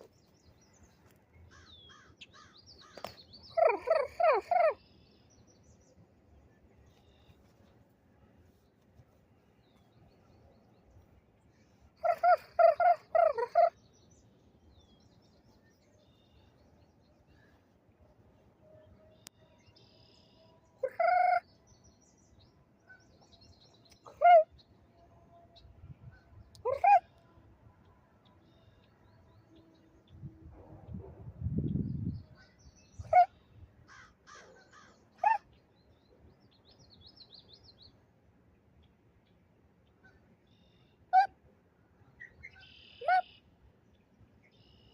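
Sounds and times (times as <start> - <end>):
crow cawing: 33.9 - 35.0
bird call notes: 42.2 - 43.5.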